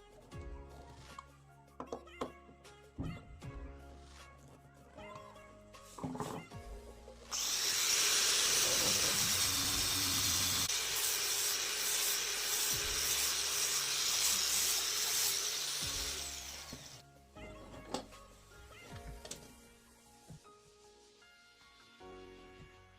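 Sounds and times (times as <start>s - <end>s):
power tool working wood: 7.3s - 17.0s.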